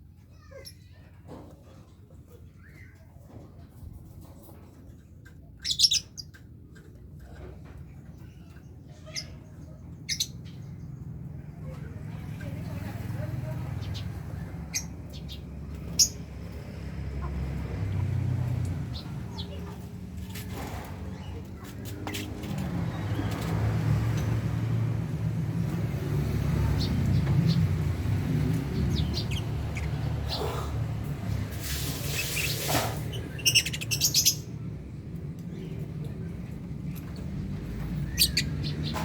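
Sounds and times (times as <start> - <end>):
lovebirds chirping: 5.6 - 6.4, 8.2 - 11.1, 13.8 - 16.6, 25.6 - 34.7, 37.0 - 39.0.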